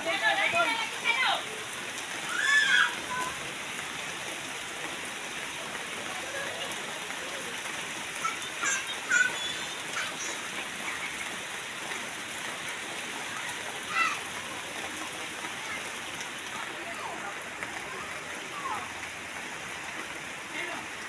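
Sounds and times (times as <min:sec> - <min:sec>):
steady rain: 0:00.0 - 0:21.0
children shouting: 0:02.2 - 0:03.5, 0:08.2 - 0:10.4, 0:13.3 - 0:14.4.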